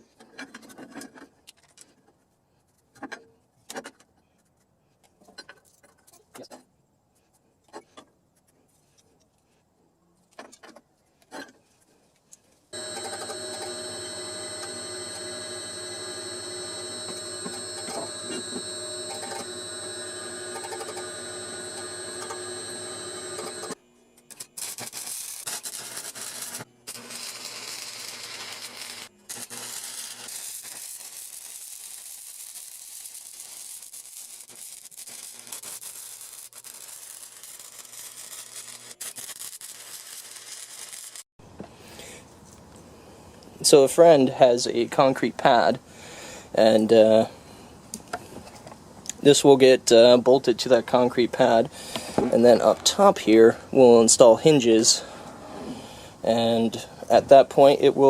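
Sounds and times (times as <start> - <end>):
steady machine whine: 12.8 - 23.8
welding arc crackling hiss: 12.8 - 23.8, 24.6 - 41.2.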